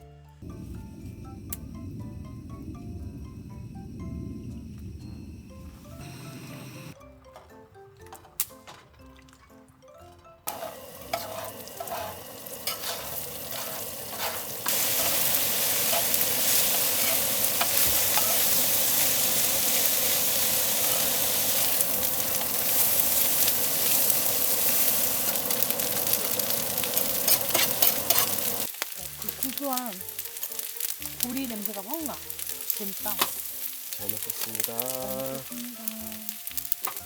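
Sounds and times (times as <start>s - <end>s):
rice sizzling in a pan: 0.4s - 7.0s, 10.5s - 37.0s
utensil scraping a pan: 10.5s - 19.1s, 27.2s - 28.6s.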